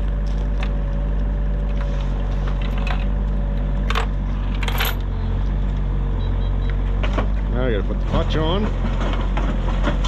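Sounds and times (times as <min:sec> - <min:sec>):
heavy machine engine running: 0:00.0 - 0:10.0
metallic clinks and clanks: 0:03.9 - 0:05.0.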